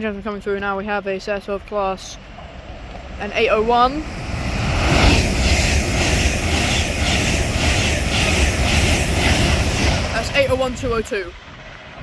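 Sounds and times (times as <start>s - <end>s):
electric train passing: 2.0s - 12.0s.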